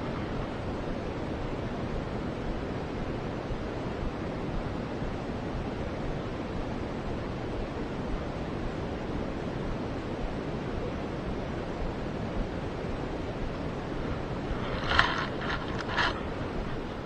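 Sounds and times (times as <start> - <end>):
wind on microphone: 9.0 - 17.0
sharp clicks and rattles: 14.6 - 16.9.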